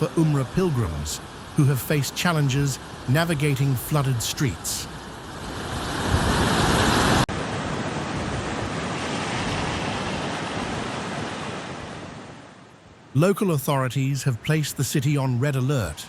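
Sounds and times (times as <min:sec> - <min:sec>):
floodwater rushing: 0:00.0 - 0:12.4.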